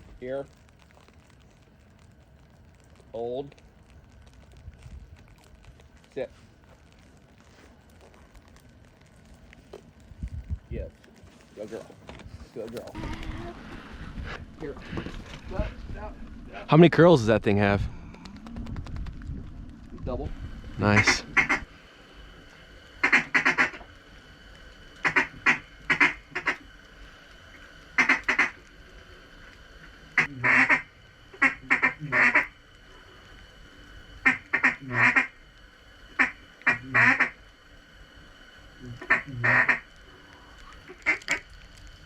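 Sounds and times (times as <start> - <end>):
duck quacking: 20.9 - 21.6, 23.0 - 23.8, 25.0 - 26.6, 28.0 - 28.6, 30.2 - 32.5, 34.2 - 35.3, 36.2 - 37.4, 39.0 - 39.8.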